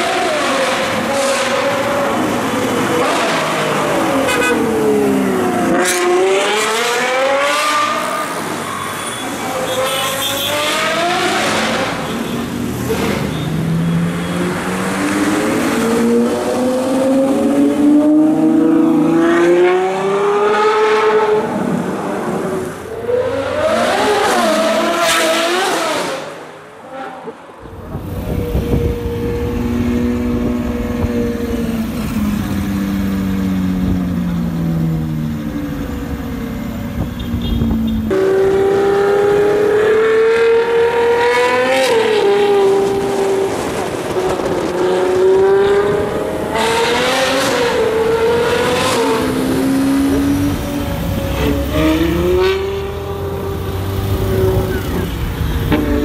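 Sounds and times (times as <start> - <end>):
car engine revving: 38.1 - 56.0.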